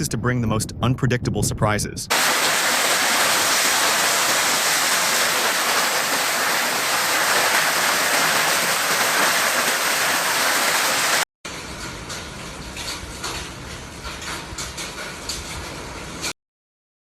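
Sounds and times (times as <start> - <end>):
water rushing: 2.1 - 11.3.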